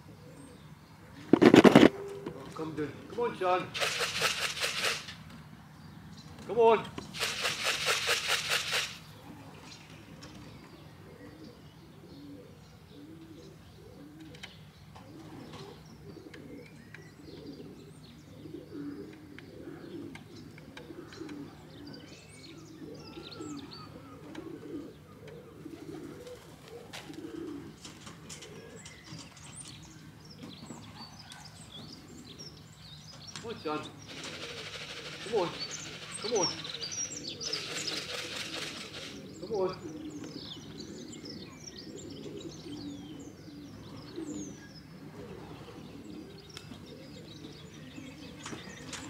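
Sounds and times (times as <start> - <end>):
pigeons cooing: 0.0 - 5.9, 6.9 - 49.0
small birds chirping: 0.0 - 49.0
rapid rattling burst: 3.7 - 5.2, 7.1 - 9.1, 34.0 - 39.2.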